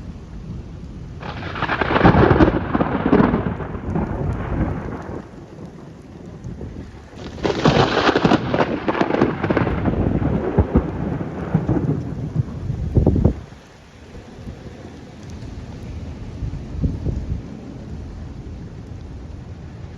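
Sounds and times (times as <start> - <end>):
steady rain: 0.0 - 19.9
thunder crack and rumble: 0.0 - 19.9.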